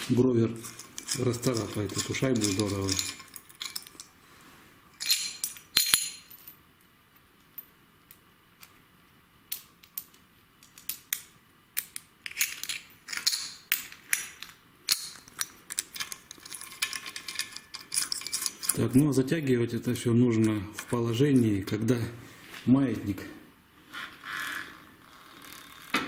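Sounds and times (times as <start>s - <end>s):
wrench and bolt clinking: 0.6s - 4.1s, 5.0s - 6.6s, 11.8s - 19.0s.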